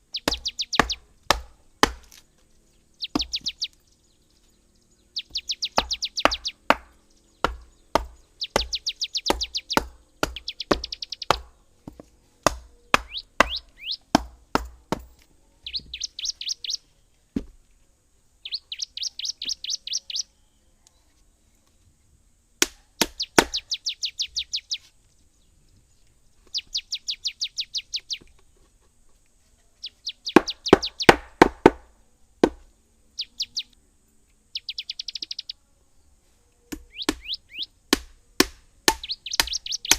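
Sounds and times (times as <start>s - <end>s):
bird singing trills: 0.0s - 17.2s, 18.4s - 22.1s, 22.9s - 28.7s, 29.6s - 31.4s, 33.0s - 37.8s, 38.9s - 39.9s
sharp knocks or chopping: 0.2s - 2.2s, 3.1s - 3.5s, 5.3s - 15.2s, 22.6s - 23.7s, 30.4s - 32.6s, 36.7s - 37.3s, 37.9s - 39.9s.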